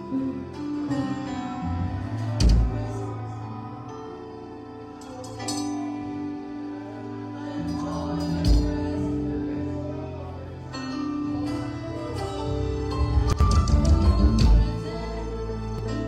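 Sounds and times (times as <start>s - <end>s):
sustained chords over bass: 1.4s - 3.8s, 6.1s - 16.0s.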